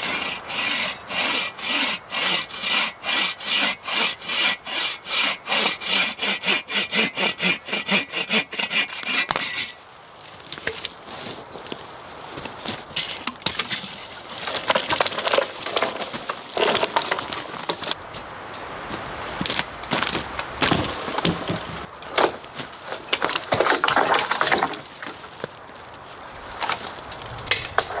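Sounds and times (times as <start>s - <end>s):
dry wood cracking and snapping: 8.7s - 18.2s, 18.9s - 28.0s.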